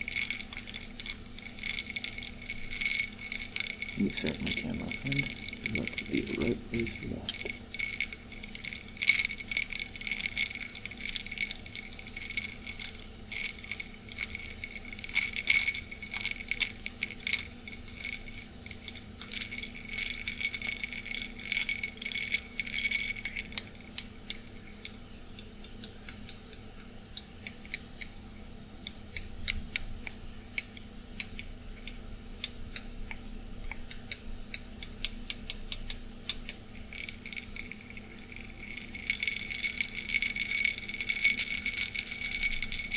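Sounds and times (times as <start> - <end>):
ice cubes clinking in a glass: 0.0 - 25.4, 36.3 - 42.9
air-conditioner hum: 0.0 - 42.9.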